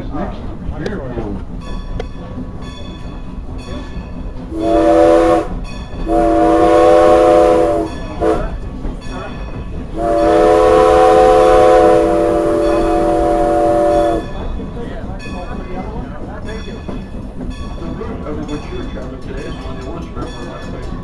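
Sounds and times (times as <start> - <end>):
rumble of moving train: 0.0 - 21.0
steam locomotive chime whistle: 4.5 - 9.2, 9.9 - 14.5.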